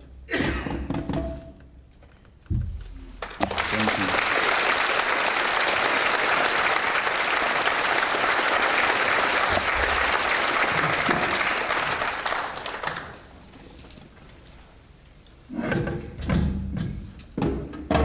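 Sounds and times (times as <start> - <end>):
audience applauding: 3.2 - 13.5.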